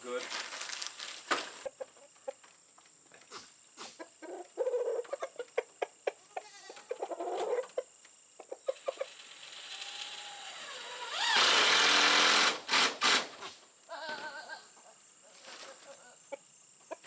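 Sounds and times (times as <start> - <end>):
chickens clucking: 1.3 - 9.3, 14.1 - 17.0.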